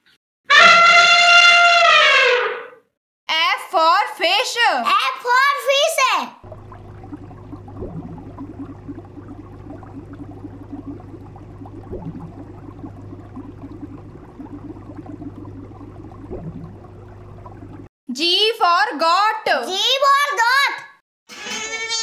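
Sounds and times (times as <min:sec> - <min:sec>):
aquarium water bubbling: 0:06.4 - 0:17.9
low hum: 0:06.5 - 0:17.9.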